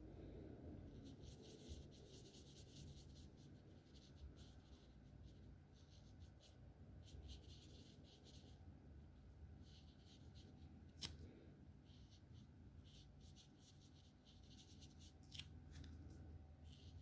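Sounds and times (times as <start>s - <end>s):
marker scratching on paper: 0.9s - 8.6s, 9.6s - 11.1s, 11.8s - 15.4s, 16.6s - 17.0s.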